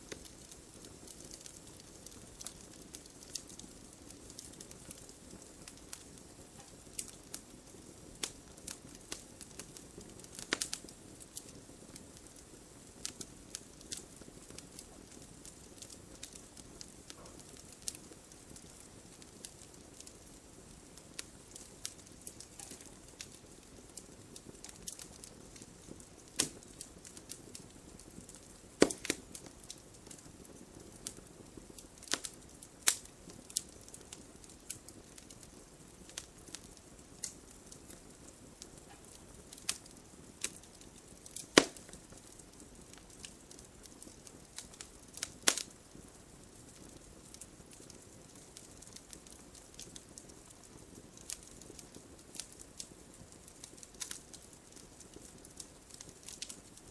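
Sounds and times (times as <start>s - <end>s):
fire crackling and popping: 0.0s - 56.9s
low steady hiss: 0.0s - 56.9s
loud log snaps: 28.8s - 29.2s.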